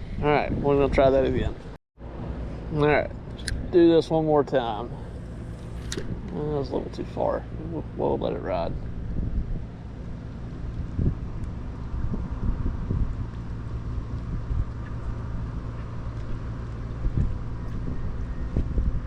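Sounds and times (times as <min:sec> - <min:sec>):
steady low hum: 0:00.0 - 0:19.0
wind buffeting microphone: 0:00.0 - 0:19.0.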